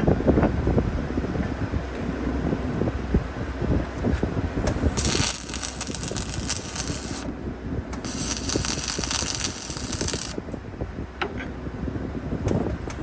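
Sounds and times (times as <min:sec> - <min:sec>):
steady low rumble: 0:00.0 - 0:11.2
welding arc crackling: 0:04.7 - 0:07.3, 0:08.0 - 0:10.4.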